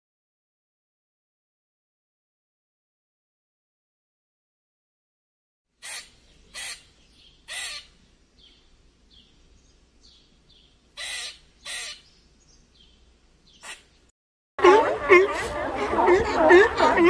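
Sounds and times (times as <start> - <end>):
faint high bird chirps: 5.8 - 14.1
harsh bird calls: 5.8 - 17.0.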